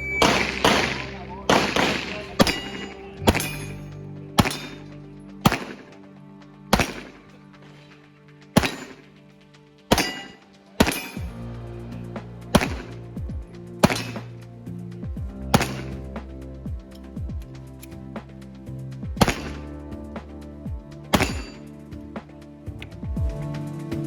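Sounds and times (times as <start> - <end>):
background music: 0.0 - 24.0
pistol shots: 0.2 - 3.8, 4.4 - 6.0, 6.7 - 7.2, 8.6 - 9.0, 9.9 - 11.3, 12.6 - 13.0, 13.8 - 14.3, 15.6 - 16.0, 19.2 - 19.7, 21.1 - 21.6.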